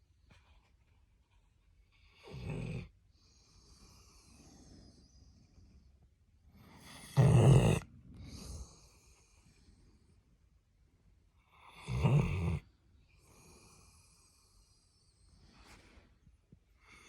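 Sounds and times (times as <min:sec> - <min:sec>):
dog snoring: 0:02.0 - 0:05.0, 0:06.6 - 0:09.6, 0:11.5 - 0:14.8
dog breathing: 0:02.2 - 0:10.3.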